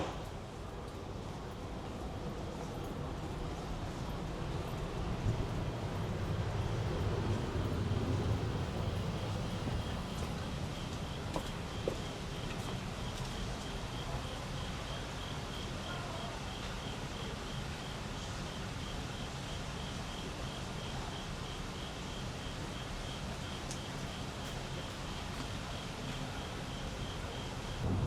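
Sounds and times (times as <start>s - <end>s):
low background rumble: 4.7s - 10.2s
cricket chirping: 5.4s - 17.6s, 19.1s - 28.0s.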